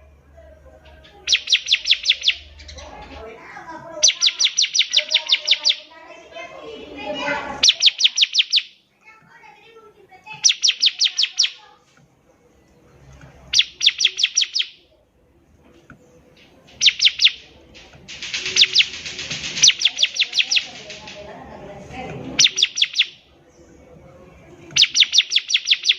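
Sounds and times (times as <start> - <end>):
bird singing rapid high notes: 1.2 - 3.2, 4.0 - 6.0, 7.3 - 8.9, 10.3 - 11.6, 13.4 - 14.9, 16.7 - 21.0, 22.4 - 23.3, 24.7 - 25.9.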